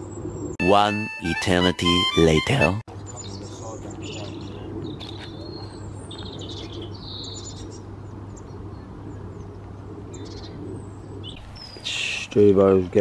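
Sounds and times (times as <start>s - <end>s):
small birds chirping: 2.9s - 13.0s.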